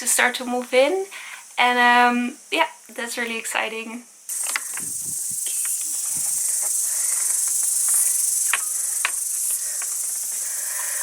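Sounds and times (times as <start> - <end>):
insects chirring: 0.0 - 11.0
faint clicks: 7.4 - 10.9.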